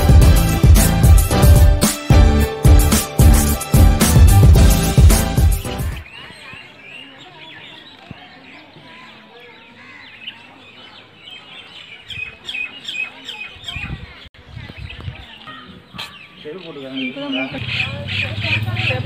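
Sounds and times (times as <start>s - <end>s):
small birds chirping: 5.6s - 19.0s.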